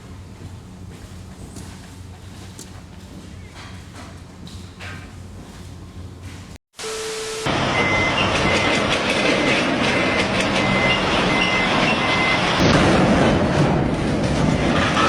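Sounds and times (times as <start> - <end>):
brief steady tone: 6.8 - 12.6.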